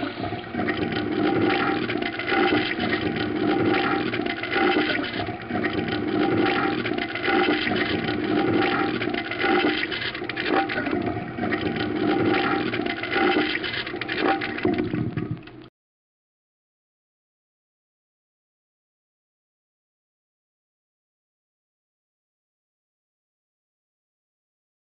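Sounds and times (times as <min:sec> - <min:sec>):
water rushing and gurgling: 0:00.0 - 0:15.4.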